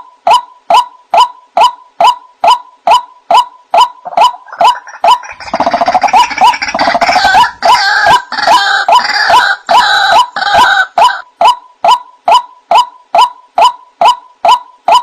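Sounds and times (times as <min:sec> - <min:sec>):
waterhens calling: 0:00.3 - 0:15.0
harsh rapid chattering chorus: 0:02.9 - 0:07.8.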